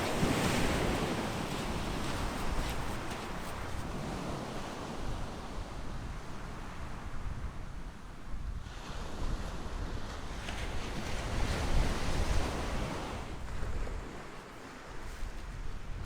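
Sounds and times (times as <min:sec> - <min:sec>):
sea waves breaking on beach: 0:00.0 - 0:05.0.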